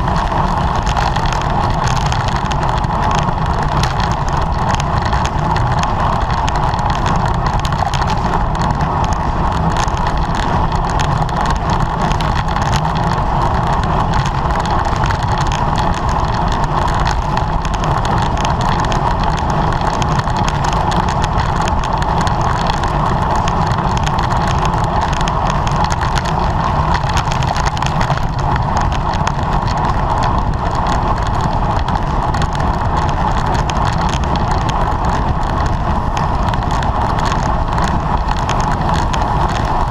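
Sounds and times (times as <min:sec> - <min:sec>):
bicycle road noise: 0:00.0 - 0:39.9
wind rushing on microphone: 0:00.0 - 0:39.9.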